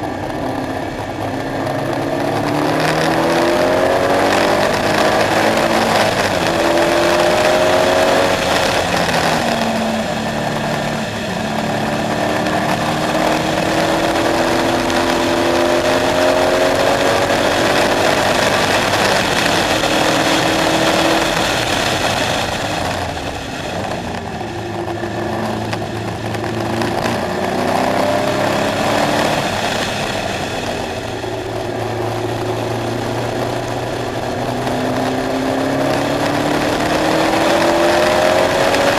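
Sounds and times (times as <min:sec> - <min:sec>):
car engine revving through gears: 0:00.0 - 0:38.9.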